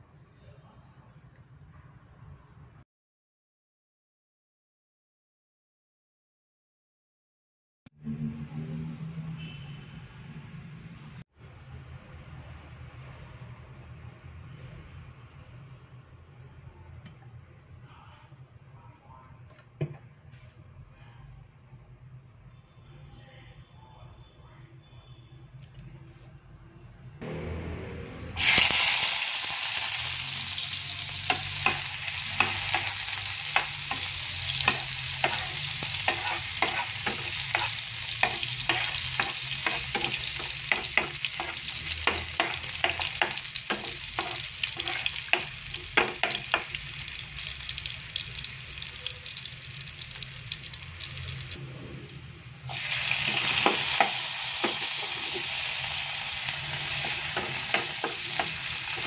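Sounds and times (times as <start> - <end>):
garlic sizzling in hot oil: 28.4 - 59.0
spatula scraping a pan: 31.2 - 46.8, 56.7 - 59.0.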